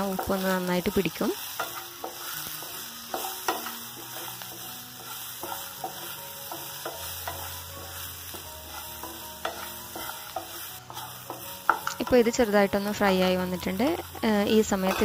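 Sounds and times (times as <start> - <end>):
chillies sizzling in oil: 0.0 - 15.0
wooden spatula scraping pan: 1.6 - 12.2.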